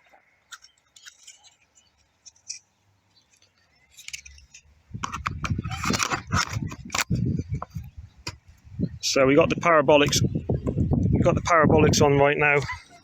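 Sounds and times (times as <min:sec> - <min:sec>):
plastic clicks and scratches: 0:00.5 - 0:08.4
microphone buffeting with crackle: 0:04.9 - 0:13.0.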